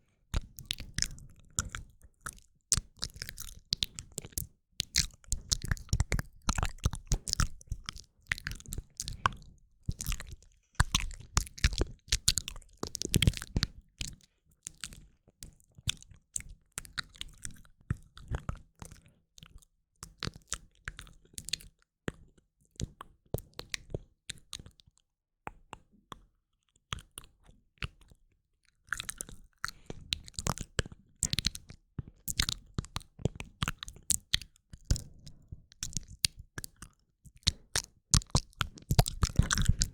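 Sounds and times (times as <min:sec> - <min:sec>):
mouth clicks and smacks: 0:35.8 - 0:39.9.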